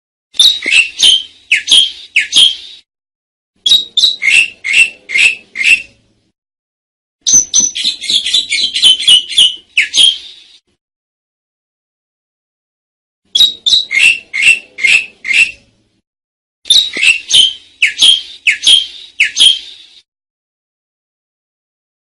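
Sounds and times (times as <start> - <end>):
starling calling: 0.4 - 2.8, 3.7 - 6.0, 7.3 - 10.6, 13.3 - 15.6, 16.7 - 20.0.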